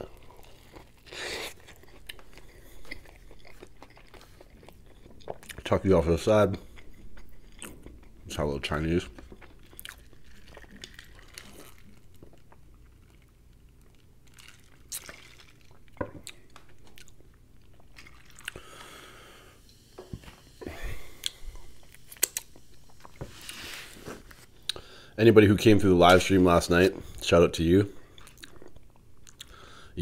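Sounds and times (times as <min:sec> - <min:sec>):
person chewing food: 0:00.0 - 0:05.8, 0:06.6 - 0:24.9, 0:28.0 - 0:29.7
wet mouth clicks: 0:22.1 - 0:23.2.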